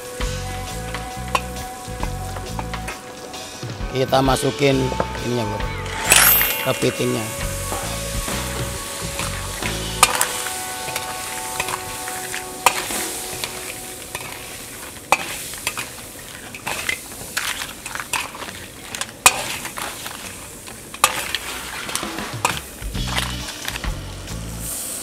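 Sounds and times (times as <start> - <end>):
crab sizzling in butter: 0.0 - 3.8, 4.4 - 25.0
utensil clacking on pan: 9.2 - 23.8.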